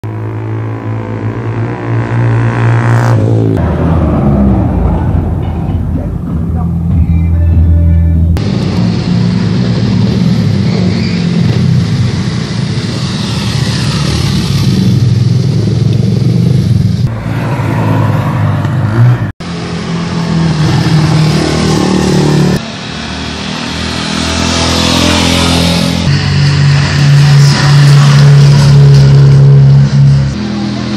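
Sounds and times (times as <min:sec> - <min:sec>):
motorcycle engines revving: 0:00.0 - 0:30.9.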